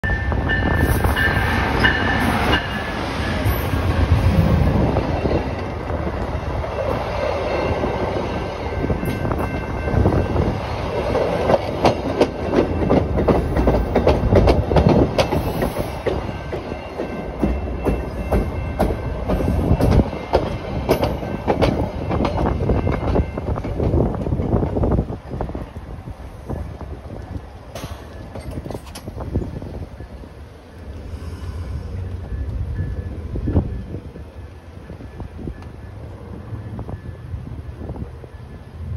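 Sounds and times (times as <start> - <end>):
diesel locomotive rumbling past: 0.0 - 38.9
flat wheels banging on rails: 8.1 - 25.0.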